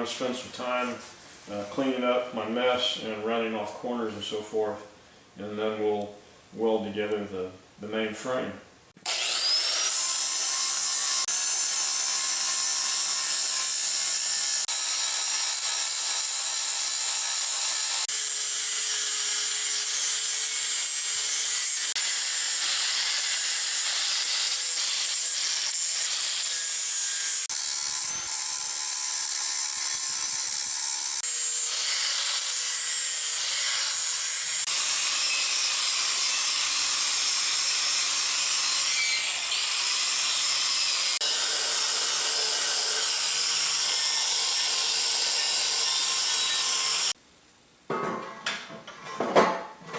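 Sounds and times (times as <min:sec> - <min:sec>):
angle grinder grinding steel: 0:09.0 - 0:47.2.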